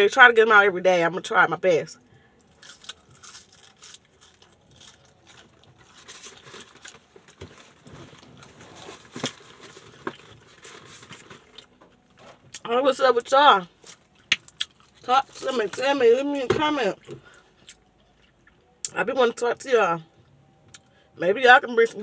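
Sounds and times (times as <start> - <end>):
person chewing fries: 2.5 - 11.7, 13.8 - 15.0
paper wrappers rustling: 2.5 - 12.3.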